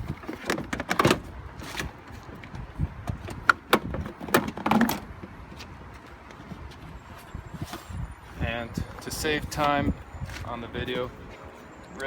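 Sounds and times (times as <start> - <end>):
plastic housing knocks and scrapes: 0.0 - 5.4.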